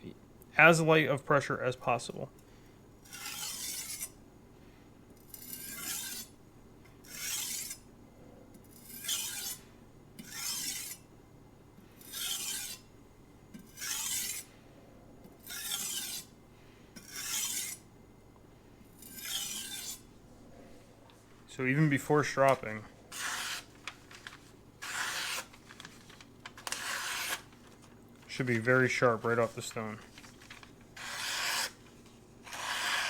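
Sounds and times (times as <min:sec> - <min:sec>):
knife scraping on whetstone: 0:03.0 - 0:04.2, 0:05.3 - 0:06.3, 0:07.0 - 0:07.8, 0:08.7 - 0:09.6, 0:10.2 - 0:11.0, 0:12.0 - 0:12.9, 0:13.6 - 0:14.5, 0:15.4 - 0:16.3, 0:17.0 - 0:17.8, 0:19.0 - 0:20.1, 0:23.1 - 0:23.8, 0:24.8 - 0:25.5, 0:26.6 - 0:27.4, 0:31.0 - 0:31.8, 0:32.4 - 0:33.0.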